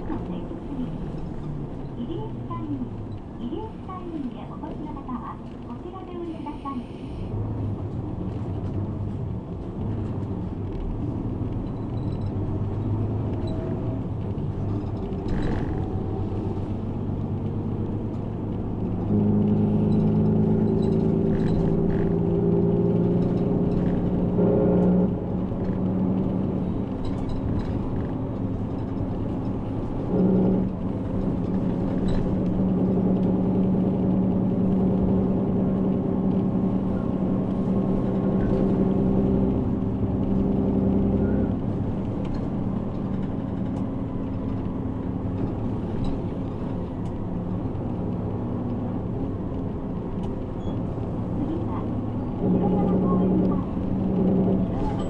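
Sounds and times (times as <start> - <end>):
bus diesel engine: 0.0 - 55.0.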